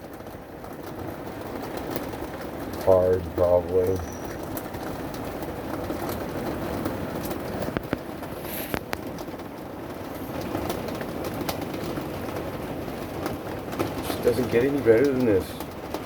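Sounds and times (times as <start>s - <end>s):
heavy rain hissing: 2.3s - 11.0s, 12.1s - 15.8s.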